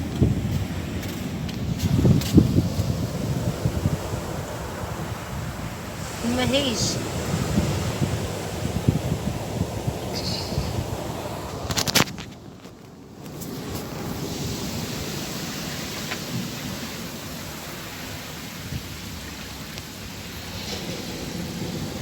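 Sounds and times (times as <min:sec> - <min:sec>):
wind on microphone: 0:00.0 - 0:12.6
waves breaking: 0:00.0 - 0:22.0.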